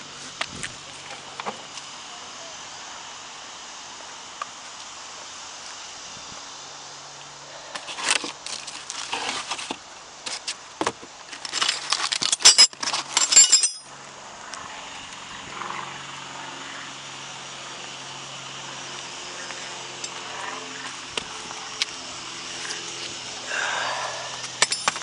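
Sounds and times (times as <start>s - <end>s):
metallic clicks and scrapes: 11.3s - 13.9s.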